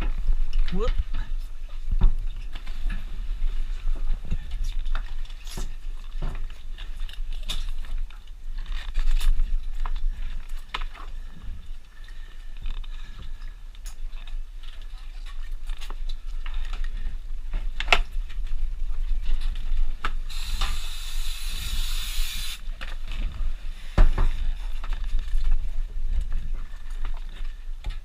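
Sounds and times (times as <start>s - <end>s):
scuba gear air hissing: 20.3s - 22.6s.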